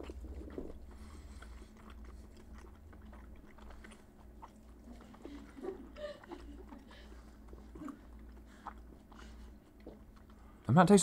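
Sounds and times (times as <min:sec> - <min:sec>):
wet mouth clicks: 0:00.0 - 0:05.6
faint chewing: 0:00.0 - 0:10.8.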